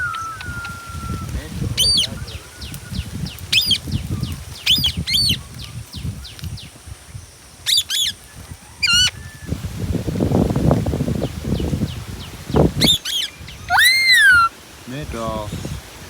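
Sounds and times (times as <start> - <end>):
parrot screeching calls: 0.0 - 2.1, 7.7 - 9.5, 12.8 - 14.6
rapid high chirping: 0.0 - 6.2, 12.8 - 14.5.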